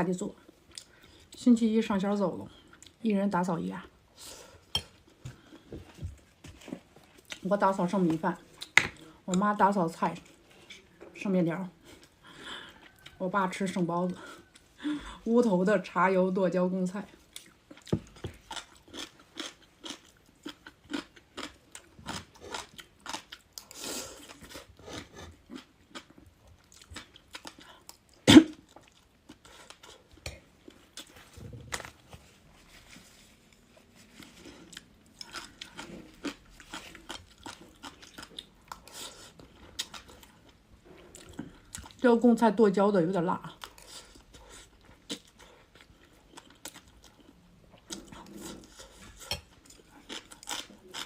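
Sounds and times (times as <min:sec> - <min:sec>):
crunching of crisp pickle: 0:17.4 - 0:24.4.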